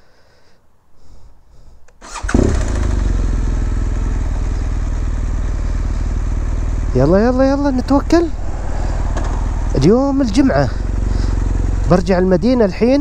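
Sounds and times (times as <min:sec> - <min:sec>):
motorcycle engine starting and idling: 0:02.0 - 0:06.9.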